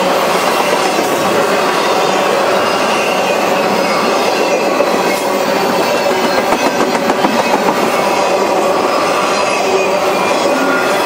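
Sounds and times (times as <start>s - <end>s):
train wheels rumbling on rail: 0.0s - 11.0s
clacks over rail joints: 4.3s - 8.3s.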